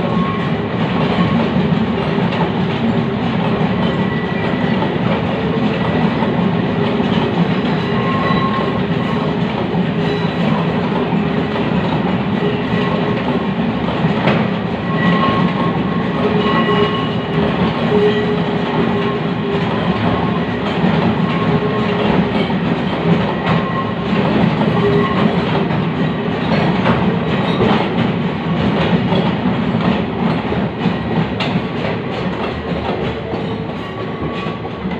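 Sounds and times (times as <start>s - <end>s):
train wheels clacking on rails: 0.0s - 34.9s
wheel squeals: 7.6s - 8.8s, 14.8s - 17.3s.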